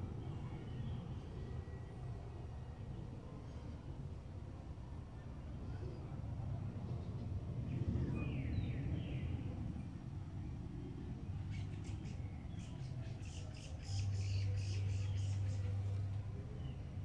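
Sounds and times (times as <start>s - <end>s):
steady low hum: 0.0s - 17.0s
small birds chirping: 11.3s - 17.0s.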